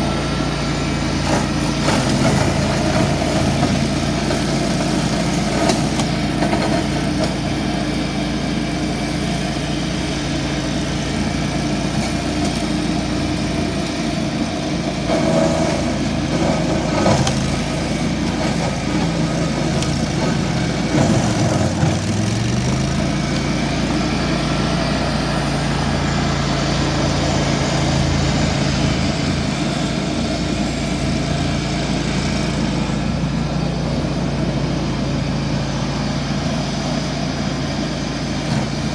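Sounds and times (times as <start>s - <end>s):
tractor engine running: 0.0s - 38.9s
shredder noise bursts: 11.0s - 33.4s.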